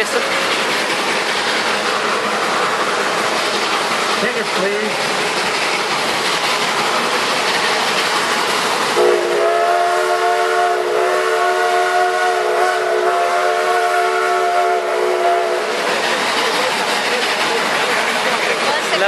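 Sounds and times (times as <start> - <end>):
train running noise: 0.0 - 19.0
steam locomotive whistle blast: 9.0 - 15.7.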